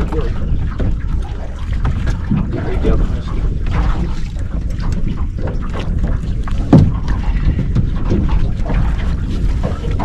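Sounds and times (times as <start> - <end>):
boat engine low rumble: 0.0 - 10.0
wind buffeting microphone: 0.0 - 10.0
loud thump: 6.7 - 7.0
knocks: 6.7 - 8.3.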